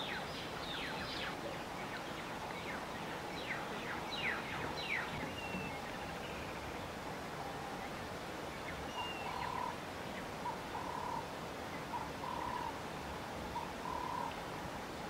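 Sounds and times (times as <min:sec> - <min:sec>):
steady outdoor hiss: 0:00.0 - 0:15.0
bird calling: 0:10.4 - 0:11.3, 0:13.6 - 0:14.4.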